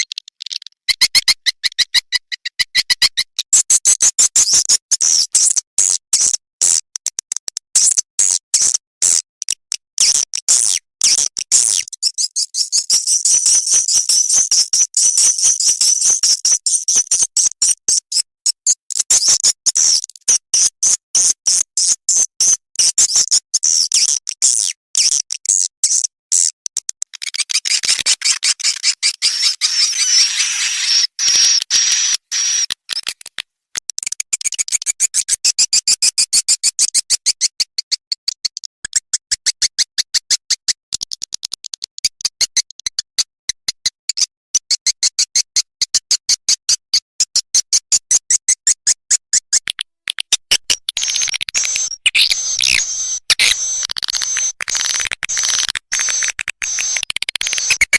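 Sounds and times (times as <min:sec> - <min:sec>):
swiftlet calls: 0:28.8 - 0:32.7, 0:51.0 - 0:57.9.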